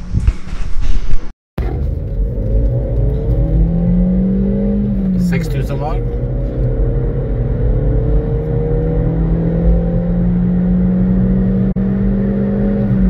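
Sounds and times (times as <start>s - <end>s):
car engine at high revs: 1.6s - 13.0s.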